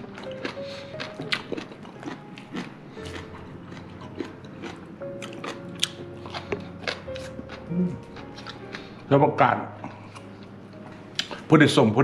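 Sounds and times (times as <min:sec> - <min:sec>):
person chewing and biting food: 0:00.0 - 0:09.1, 0:09.8 - 0:11.5.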